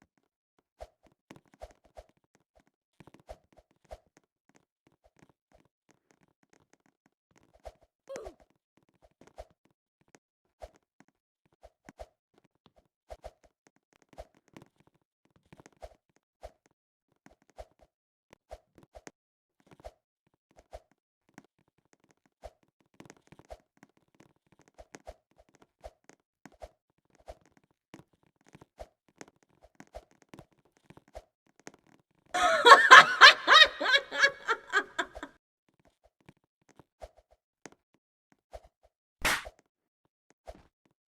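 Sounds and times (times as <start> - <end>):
burst of laughter: 32.4 - 35.3.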